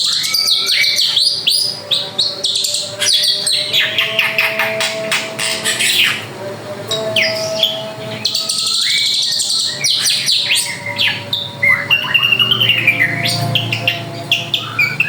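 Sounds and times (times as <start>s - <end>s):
bird singing whistles: 7.2s - 15.0s.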